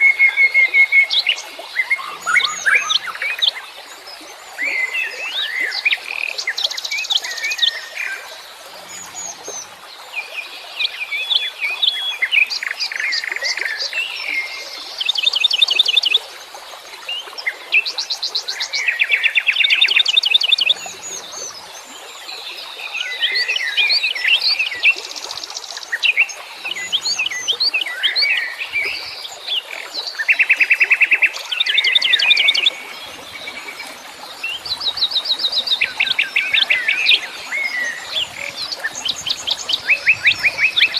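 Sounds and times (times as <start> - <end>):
songbirds chirping and singing: 1.8 - 3.6, 23.1 - 40.9.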